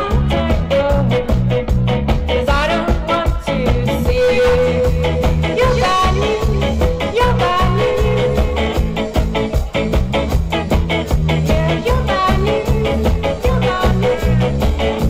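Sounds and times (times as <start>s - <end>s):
live band playing upbeat music: 0.0s - 15.0s.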